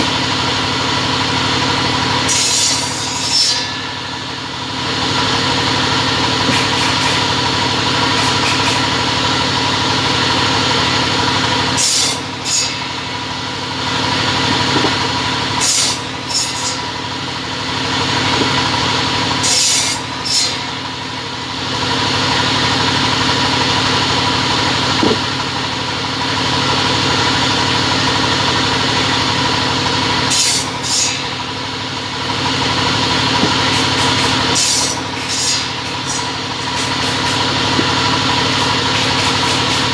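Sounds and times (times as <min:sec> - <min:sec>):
cutting machine motor hum: 0:00.0 - 0:39.9
high-pitched rasping noise: 0:02.3 - 0:07.4, 0:08.0 - 0:09.0, 0:11.8 - 0:15.0, 0:15.6 - 0:17.1, 0:18.0 - 0:21.0, 0:30.3 - 0:31.5, 0:32.9 - 0:39.9.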